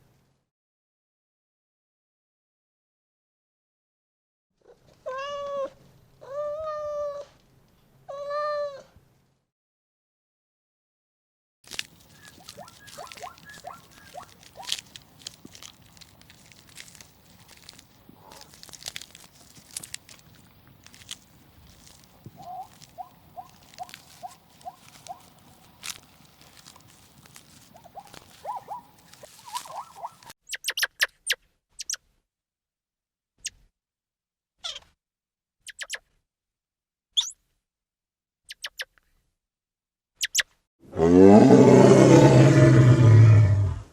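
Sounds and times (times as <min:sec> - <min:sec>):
clicks and crunching: 0:11.7 - 0:30.4
small animal chirping: 0:11.7 - 0:32.0, 0:34.6 - 0:34.9, 0:35.6 - 0:36.1, 0:37.2 - 0:37.4, 0:38.5 - 0:39.0, 0:40.2 - 0:40.5.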